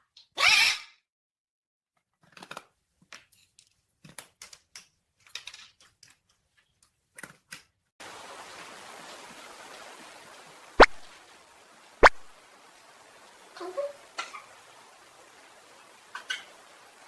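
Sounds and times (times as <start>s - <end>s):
steady background hiss: 8.0s - 17.0s.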